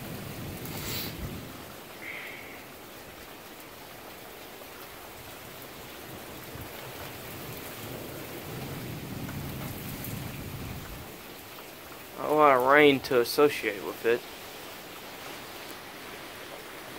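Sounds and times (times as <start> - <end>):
heavy rain falling: 0.0 - 16.9
low thunder rumble: 7.4 - 11.2.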